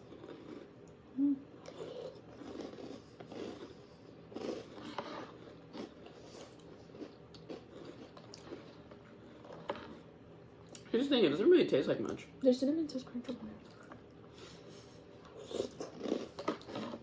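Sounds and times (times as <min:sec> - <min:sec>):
chewing crunchy cereal: 0:00.0 - 0:01.0, 0:01.6 - 0:10.9, 0:15.2 - 0:17.0.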